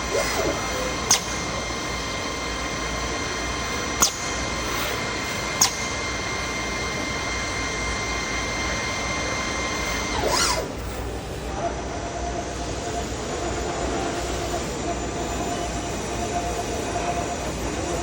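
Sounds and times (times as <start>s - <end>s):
cnc machine whining: 0.0s - 18.0s
sharp click: 1.1s - 1.5s, 4.0s - 6.0s.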